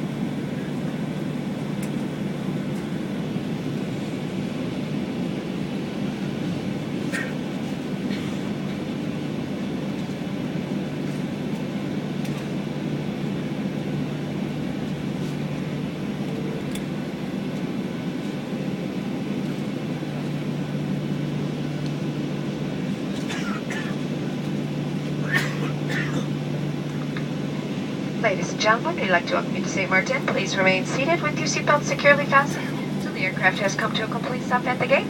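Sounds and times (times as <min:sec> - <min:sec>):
air rush and rolling noise: 0:00.0 - 0:35.0
jet engines low hum: 0:00.0 - 0:35.0.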